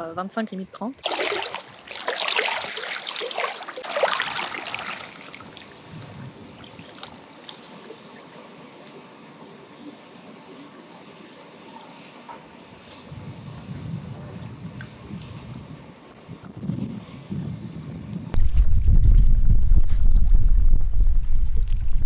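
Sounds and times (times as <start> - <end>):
pool water splashing: 1.0 - 11.7.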